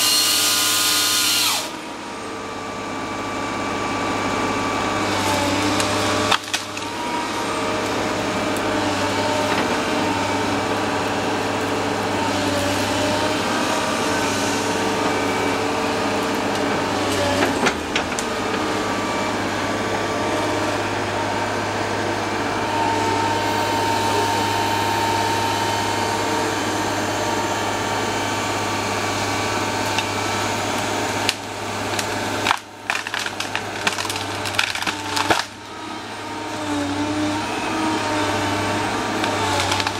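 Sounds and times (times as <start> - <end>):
excavator engine and hydraulics: 0.0 - 39.9
sharp cracks and knocks: 5.8 - 6.9, 31.3 - 35.6, 39.2 - 39.9.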